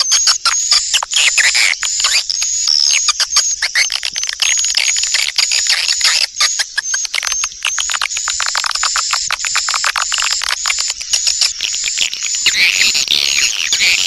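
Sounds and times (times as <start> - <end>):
swiftlet clicking chirps: 6.4 - 12.8.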